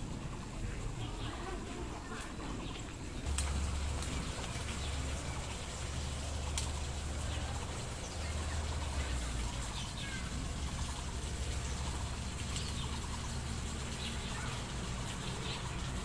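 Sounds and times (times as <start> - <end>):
steady low rumble: 0.0 - 16.0
faint bird chirps: 8.0 - 11.0.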